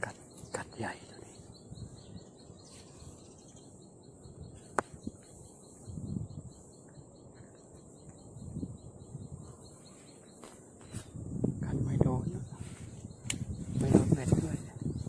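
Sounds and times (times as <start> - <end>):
insects chirping: 0.0 - 15.0
sharp click: 13.2 - 13.5.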